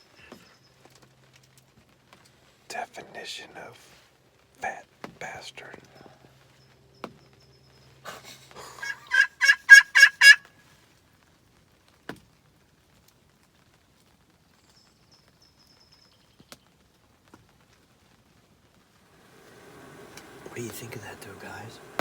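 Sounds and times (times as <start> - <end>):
turkey yelps: 8.8 - 10.5.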